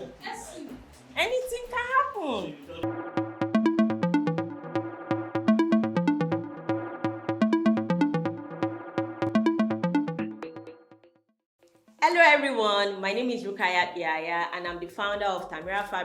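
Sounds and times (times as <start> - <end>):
electronic music: 2.6 - 11.2.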